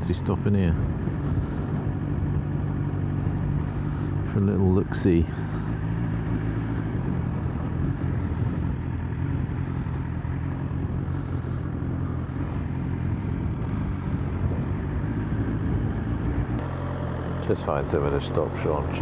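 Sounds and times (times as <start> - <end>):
motorcycle engine running: 0.0 - 19.0
road and wind noise: 0.0 - 19.0.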